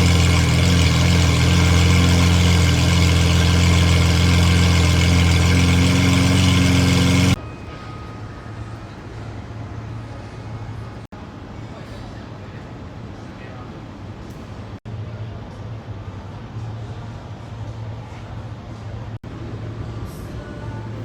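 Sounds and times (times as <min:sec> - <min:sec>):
sports car engine idling loudly: 0:00.0 - 0:07.4.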